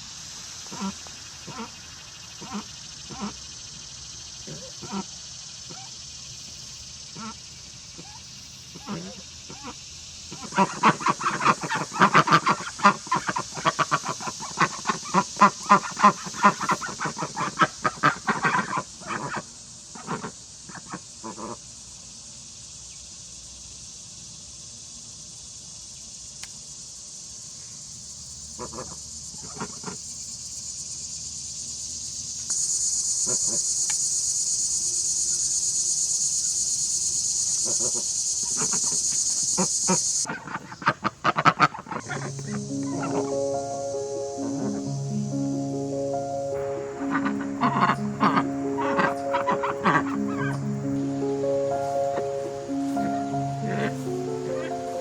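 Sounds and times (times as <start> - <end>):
insects chirring: 0.0 - 55.0
rapid pulsed animal calls: 46.6 - 55.0.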